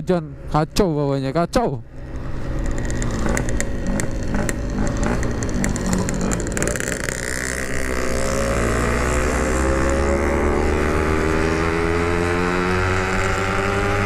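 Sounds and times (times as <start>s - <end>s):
two-stroke motorcycle engine running: 0.4s - 14.0s
sharp ticks: 2.2s - 7.3s.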